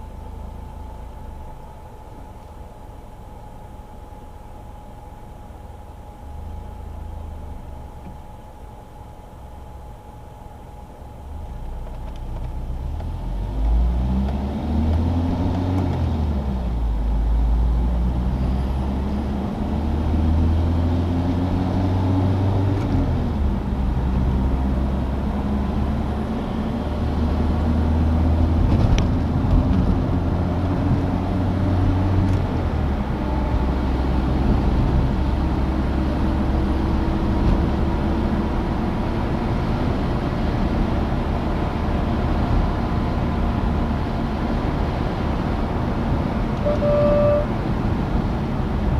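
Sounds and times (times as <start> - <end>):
road and wind noise: 0.0 - 48.9
car engine accelerating through gears: 11.9 - 48.9.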